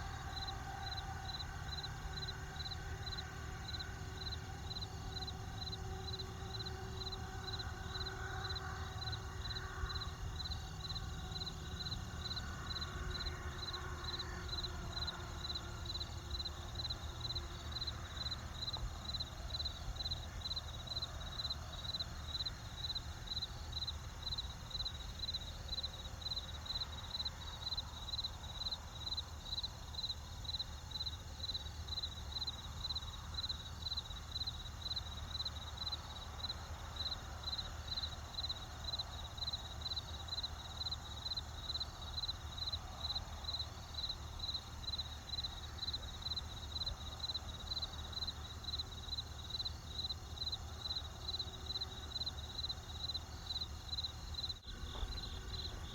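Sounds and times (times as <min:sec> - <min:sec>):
cricket chirping: 0:00.0 - 0:55.9
low steady rumble: 0:54.6 - 0:55.9.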